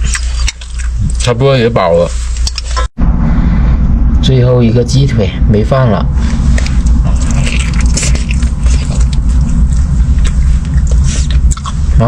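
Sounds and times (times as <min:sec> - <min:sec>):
biting and chewing: 0:00.0 - 0:01.3, 0:06.3 - 0:12.0
low rumble: 0:02.2 - 0:12.0.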